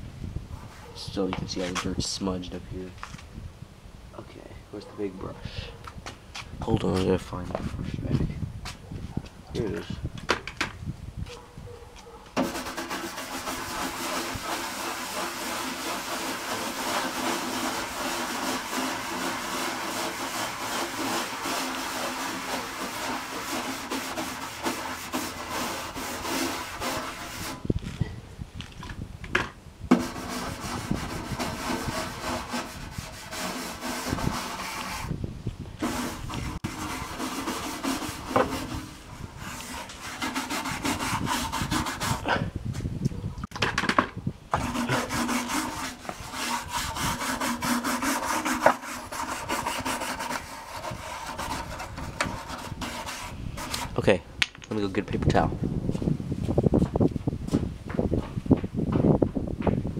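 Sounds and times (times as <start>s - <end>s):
brush scrubbing plastic case: 12.4s - 27.6s, 29.9s - 35.1s, 35.8s - 42.2s, 44.6s - 54.1s.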